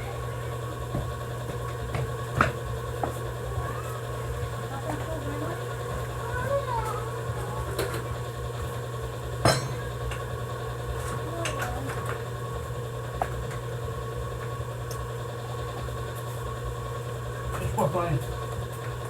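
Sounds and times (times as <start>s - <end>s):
steady low hum: 0.0s - 18.9s
sharp metallic knock: 9.5s - 9.9s.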